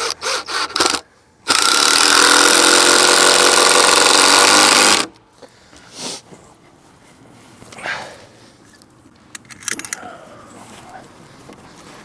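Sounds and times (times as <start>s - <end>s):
power tool motor running: 0.0s - 5.1s.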